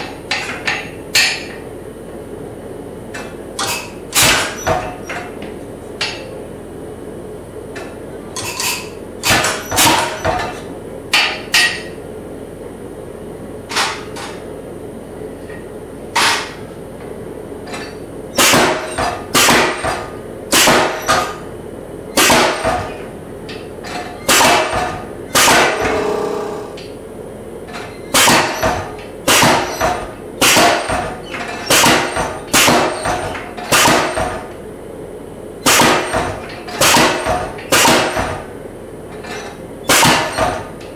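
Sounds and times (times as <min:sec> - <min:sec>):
power hammer striking hot steel: 0:00.0 - 0:01.6, 0:03.6 - 0:05.1, 0:09.2 - 0:12.0, 0:17.7 - 0:21.4, 0:22.1 - 0:23.6, 0:24.2 - 0:26.9, 0:28.1 - 0:34.5, 0:35.6 - 0:38.5, 0:39.8 - 0:40.7
steady low hum: 0:00.0 - 0:40.9.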